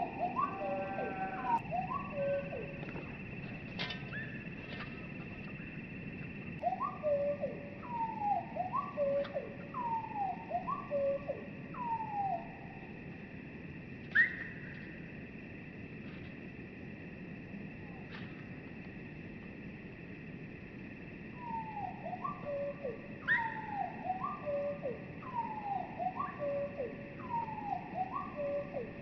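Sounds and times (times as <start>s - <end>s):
slowed bird whistles: 0.0s - 3.1s, 4.0s - 4.4s, 14.1s - 14.8s, 21.4s - 28.9s
steady high tone: 0.0s - 3.2s.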